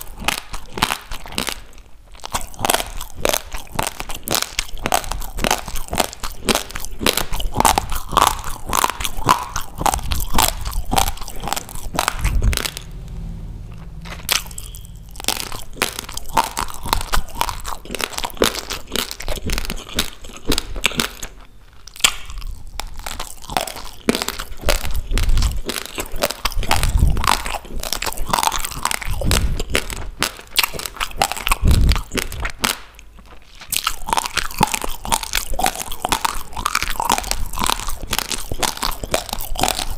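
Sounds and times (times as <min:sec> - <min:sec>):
crunching raw rice grains: 0:00.0 - 0:12.8, 0:13.9 - 0:39.9.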